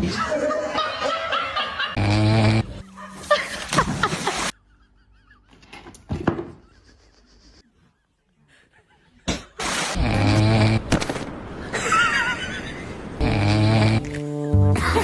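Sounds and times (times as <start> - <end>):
person laughing: 3.0 - 9.6.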